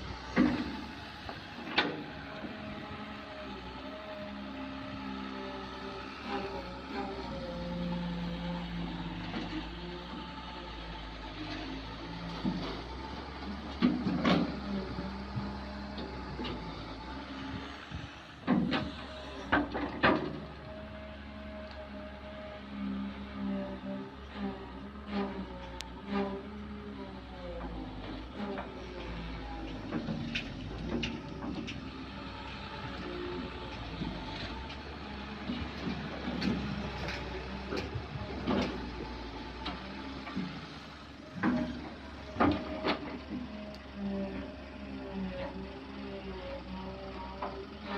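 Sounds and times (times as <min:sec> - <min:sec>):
excavator diesel engine running: 0:00.0 - 0:47.9
digging clanks and knocks: 0:18.4 - 0:20.6, 0:24.3 - 0:43.6.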